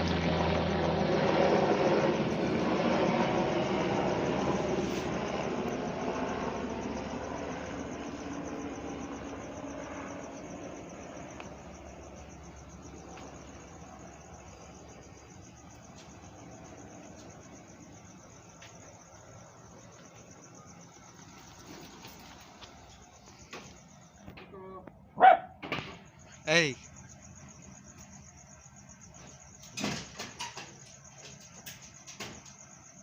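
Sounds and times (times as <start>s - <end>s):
helicopter flying away: 0.0s - 24.3s
insects trilling: 0.0s - 33.0s.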